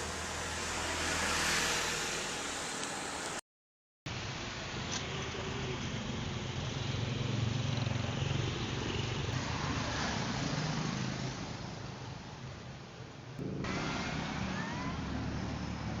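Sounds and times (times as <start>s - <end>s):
vehicle engine humming: 0.0s - 3.4s, 13.4s - 16.0s.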